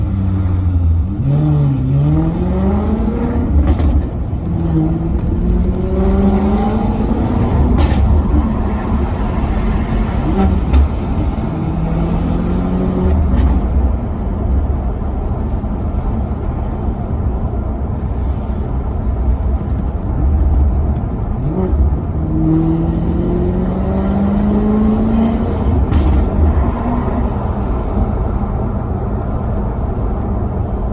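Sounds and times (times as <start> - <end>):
deep car engine revving: 0.0 - 14.1, 20.5 - 29.2.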